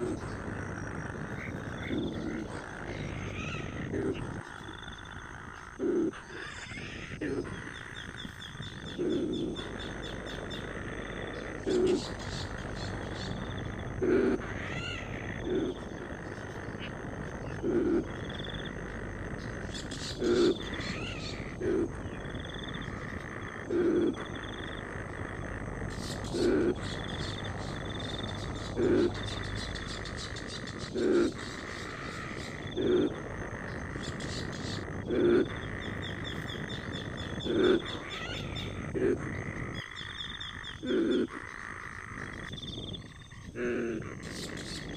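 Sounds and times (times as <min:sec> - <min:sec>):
frog croaking: 0:00.0 - 0:44.9
high-pitched background drone: 0:05.8 - 0:41.3
bird chirps: 0:35.4 - 0:38.8, 0:39.7 - 0:41.4.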